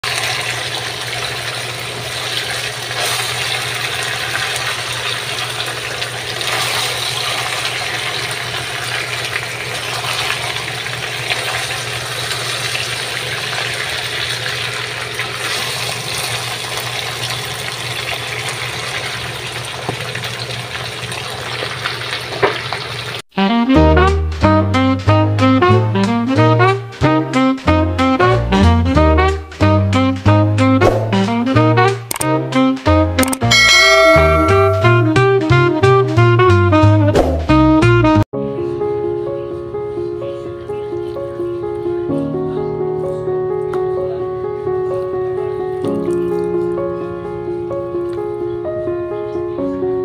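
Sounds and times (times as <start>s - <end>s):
meat sizzling in a wok: 0.0s - 23.2s
jazzy brass music: 23.3s - 38.2s.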